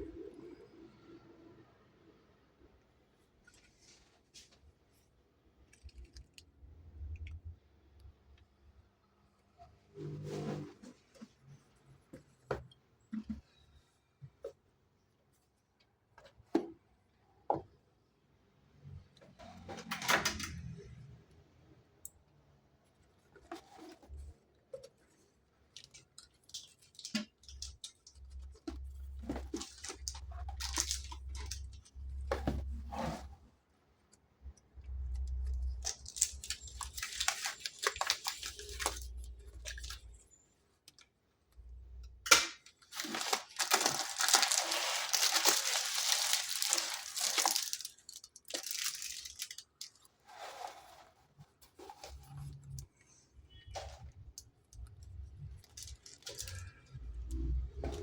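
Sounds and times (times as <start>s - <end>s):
packaging rustling: 25.8s - 32.3s, 35.4s - 40.2s, 42.8s - 52.5s, 55.5s - 56.8s
packaging tearing: 35.7s - 39.9s, 42.9s - 50.0s.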